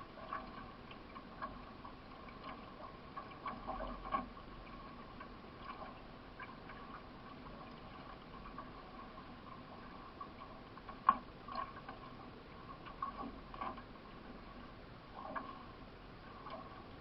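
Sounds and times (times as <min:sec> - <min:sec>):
faint canoe paddling water: 0:00.0 - 0:17.0
small clicks and knocks: 0:10.6 - 0:13.9.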